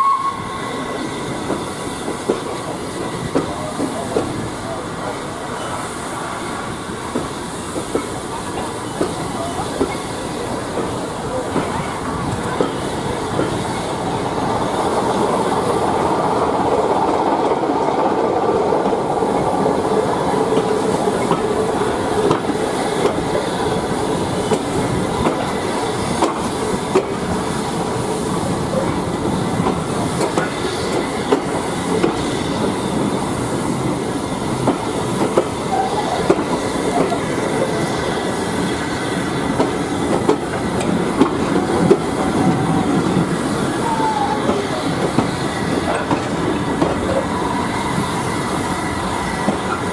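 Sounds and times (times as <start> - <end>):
train wheels rumbling on rail: 0.0 - 49.9.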